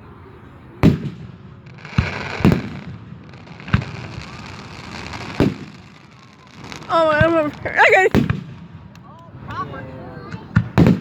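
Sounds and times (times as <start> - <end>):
fireworks bangs: 0.8 - 9.1, 10.2 - 11.0
hissing crackle: 1.6 - 8.6.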